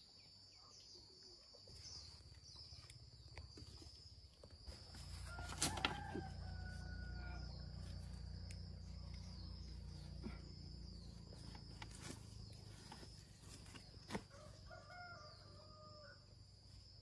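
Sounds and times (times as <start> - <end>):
high insect drone: 0.0 - 17.0
rooster crowing: 5.0 - 8.0, 14.3 - 16.3.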